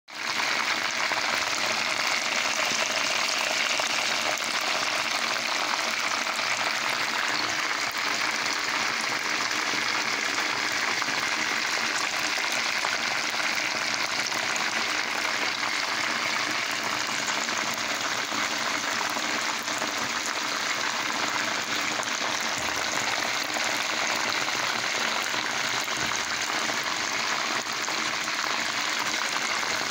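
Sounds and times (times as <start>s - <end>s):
chicken deep-frying in oil: 0.1s - 29.9s.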